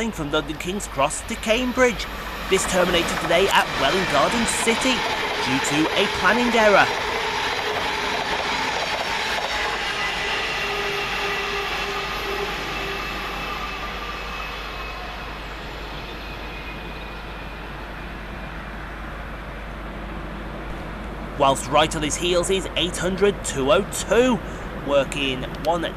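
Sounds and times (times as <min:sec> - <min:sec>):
passenger train rumbling past: 0:00.0 - 0:25.9.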